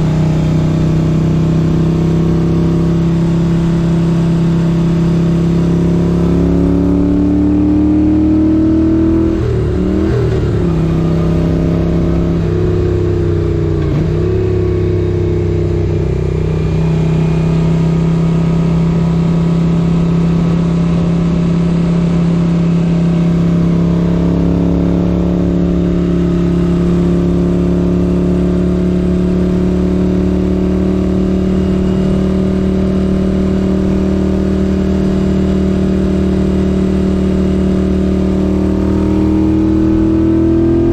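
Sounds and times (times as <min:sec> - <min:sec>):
motorcycle engine shifting up: 0:08.8 - 0:17.8.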